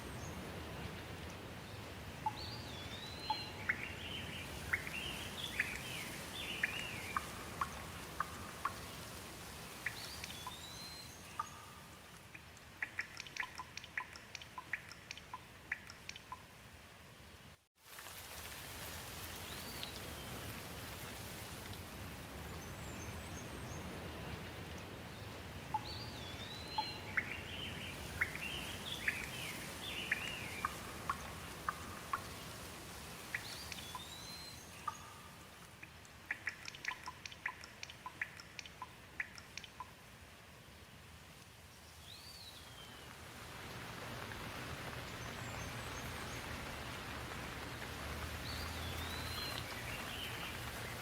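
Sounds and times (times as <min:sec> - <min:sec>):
birds chirping: 0:00.0 - 0:09.1, 0:25.2 - 0:32.6, 0:44.8 - 0:51.0
steady rain: 0:00.0 - 0:51.0
water drops dripping: 0:04.7 - 0:09.2, 0:09.8 - 0:16.5, 0:25.7 - 0:32.7, 0:33.3 - 0:40.1.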